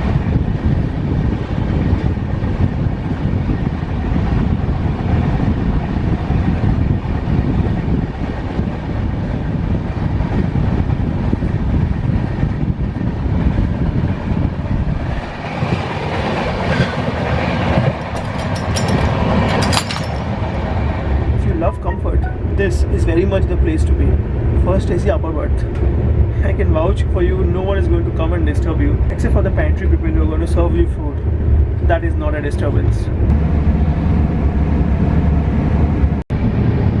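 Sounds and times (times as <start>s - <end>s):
train wheels rumbling on rails: 0.0s - 21.8s
rail clatter: 14.9s - 22.4s.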